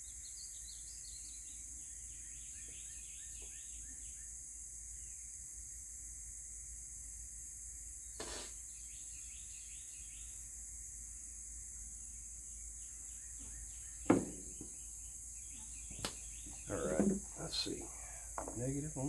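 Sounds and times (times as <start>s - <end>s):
faint bird chirps: 0.0s - 6.3s, 7.8s - 19.0s
crickets and insects chirring: 0.0s - 19.0s
sharp clunk: 14.1s - 14.7s.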